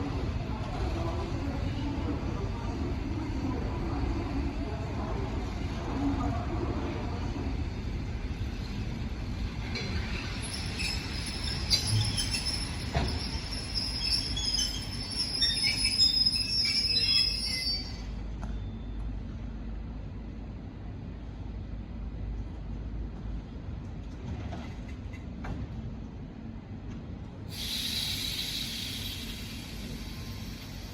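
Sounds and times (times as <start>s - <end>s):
train low rolling rumble: 0.0s - 30.9s
train wheels squealing on rails: 9.6s - 19.2s, 27.5s - 30.9s.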